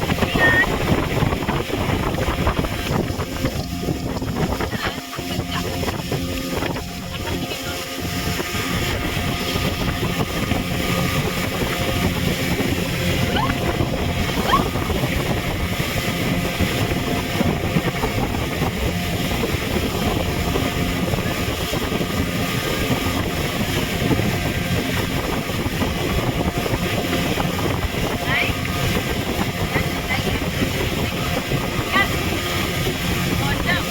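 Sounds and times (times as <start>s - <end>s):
speedboat engine running: 0.0s - 33.9s
water rushing past hull: 0.0s - 33.9s.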